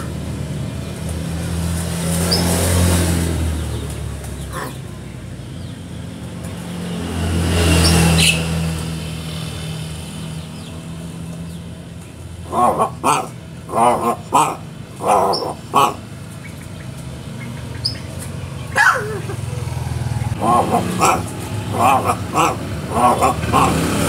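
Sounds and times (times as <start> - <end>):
vehicle engine running: 0.0 - 24.0
vehicles passing: 0.0 - 24.0
bird chirps: 7.7 - 8.5, 15.0 - 19.2.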